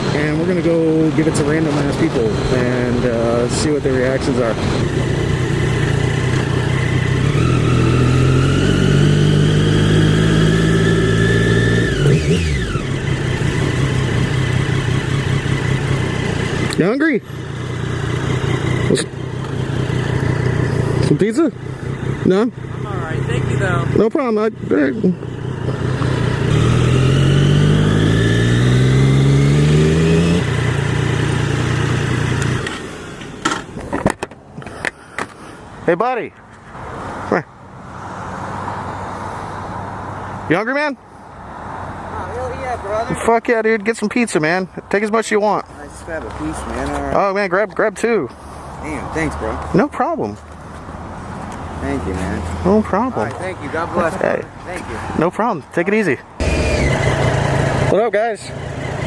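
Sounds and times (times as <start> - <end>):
motorcycle engine revving: 0.0 - 34.1, 55.9 - 59.0.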